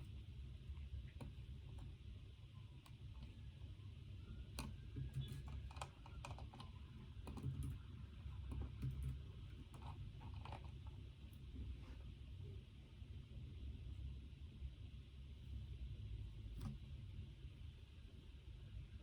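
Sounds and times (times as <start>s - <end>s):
low room hum: 0.0s - 19.0s
typing on a computer keyboard: 4.5s - 10.9s.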